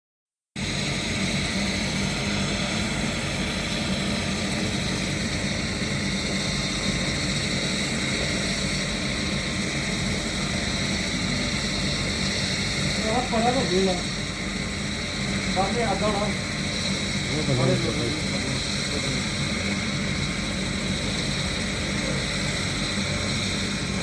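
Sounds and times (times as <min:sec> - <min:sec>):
helicopter drone: 0:00.6 - 0:24.0.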